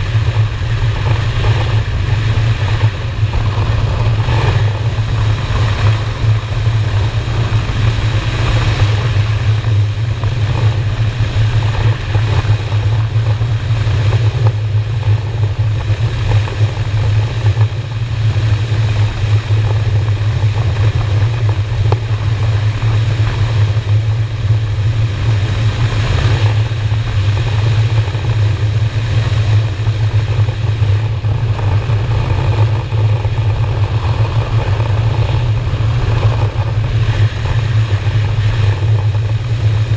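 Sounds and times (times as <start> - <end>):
motorcycle engine cruising: 0.0 - 39.9
wind over microphone: 0.0 - 39.9.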